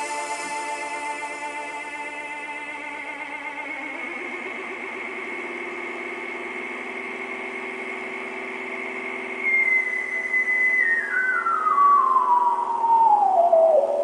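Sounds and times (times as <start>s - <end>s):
high whistling lead tone sliding down: 9.2s - 14.0s.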